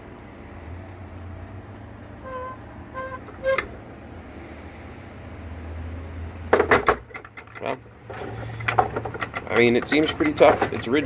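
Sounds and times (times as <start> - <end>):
sharp knocks: 6.5 - 7.3.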